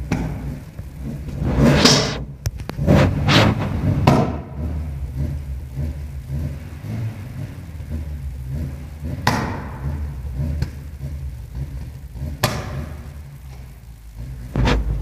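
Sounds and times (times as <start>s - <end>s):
car exhaust popping: 0.0s - 15.0s
engine low rumble: 0.0s - 15.0s.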